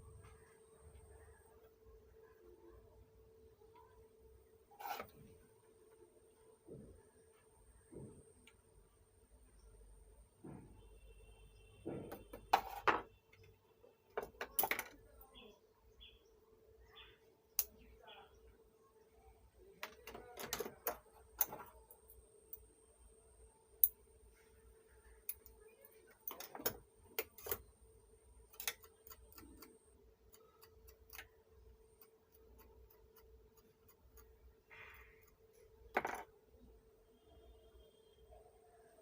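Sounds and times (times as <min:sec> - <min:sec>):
faint steady hum: 0:00.0 - 0:39.0
small tools clicking on workbench: 0:28.5 - 0:31.3.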